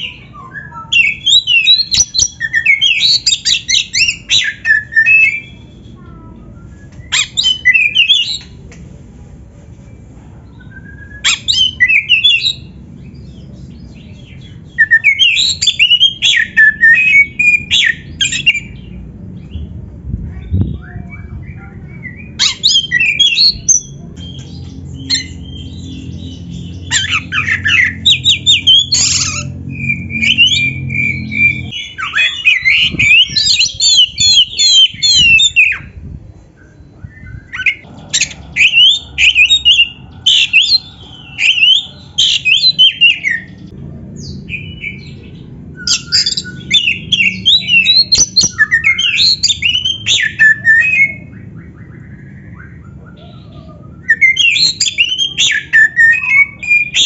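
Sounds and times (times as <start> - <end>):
bird singing loudly: 20.6 - 36.0, 37.0 - 57.0.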